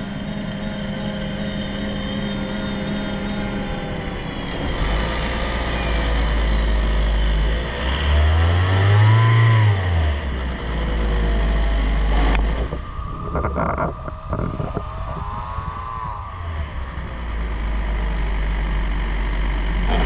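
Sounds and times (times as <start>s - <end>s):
car engine revving: 3.0s - 12.9s.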